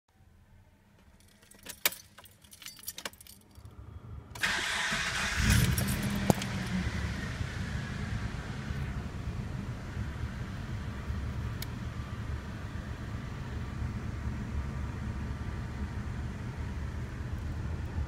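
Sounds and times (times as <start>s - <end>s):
keys jangling in ignition: 1.0s - 3.8s, 4.4s - 6.7s
car engine idling: 3.8s - 18.0s.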